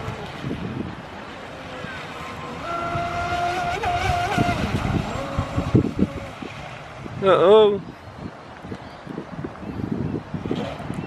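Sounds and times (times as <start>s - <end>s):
boat motor whining: 0.0s - 6.5s.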